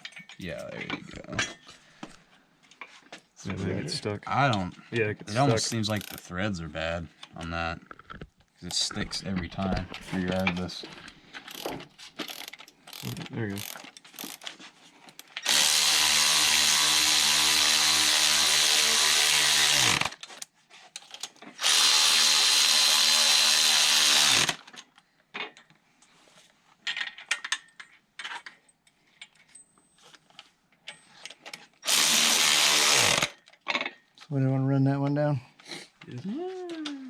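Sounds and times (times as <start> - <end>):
power drill running bolt: 15.4 - 20.3, 21.6 - 24.7, 31.8 - 33.4.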